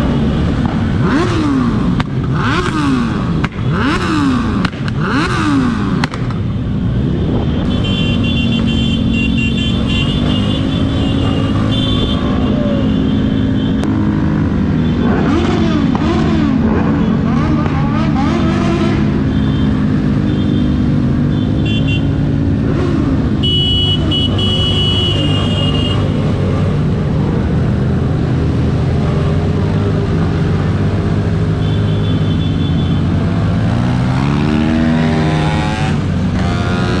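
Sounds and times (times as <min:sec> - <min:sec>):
engine revving: 0:00.0 - 0:06.4, 0:09.7 - 0:21.1, 0:32.7 - 0:37.0
motorcycle engines running: 0:00.0 - 0:37.0
high-pitched horn toots: 0:23.4 - 0:26.2.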